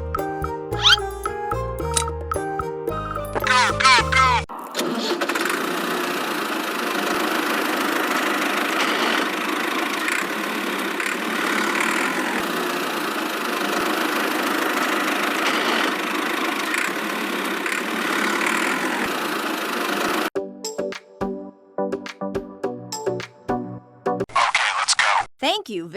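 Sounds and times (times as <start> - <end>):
small motor running: 4.8 - 20.3.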